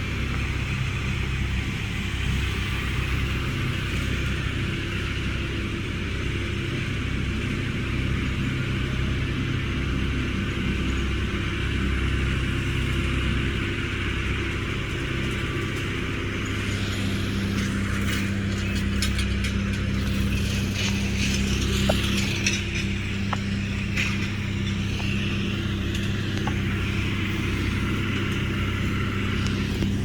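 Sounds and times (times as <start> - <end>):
engine running steadily: 0.0 - 30.0
sharp clicks and rattles: 15.1 - 30.0.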